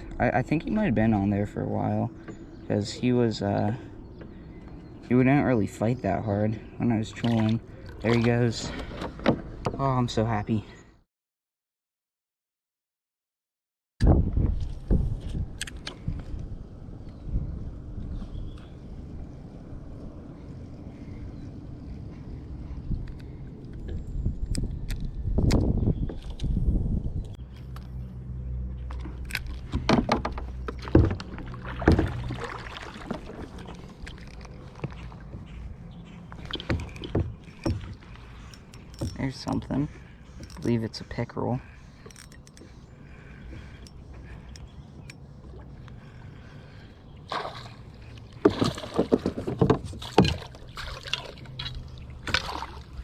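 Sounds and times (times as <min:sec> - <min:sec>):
paddle strokes splashing: 0:29.5 - 0:39.0, 0:45.4 - 0:53.0
paddle knocking against kayak: 0:29.7 - 0:33.8, 0:48.4 - 0:50.9.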